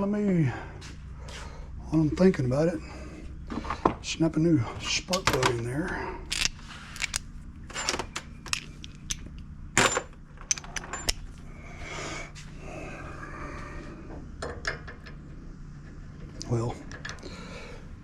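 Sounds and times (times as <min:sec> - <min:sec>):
metal tools clinking: 0:06.3 - 0:11.3.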